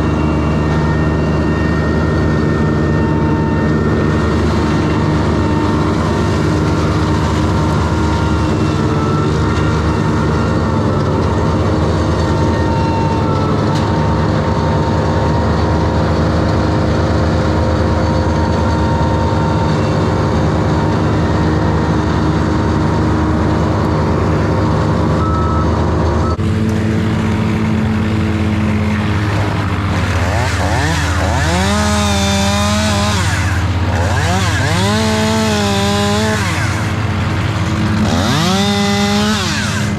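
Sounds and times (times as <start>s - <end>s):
heavy equipment engines running: 0.0s - 39.9s
chainsaw revving and cutting: 26.4s - 39.9s.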